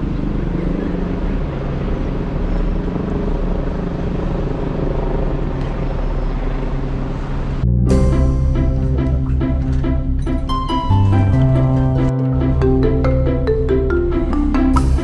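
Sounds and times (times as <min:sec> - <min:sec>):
road noise: 0:00.0 - 0:07.8
low engine hum: 0:00.0 - 0:15.0.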